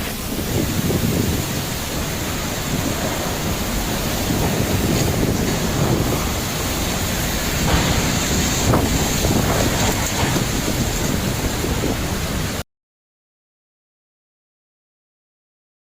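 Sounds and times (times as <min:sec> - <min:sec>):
strong wind on microphone: 0:00.0 - 0:12.6.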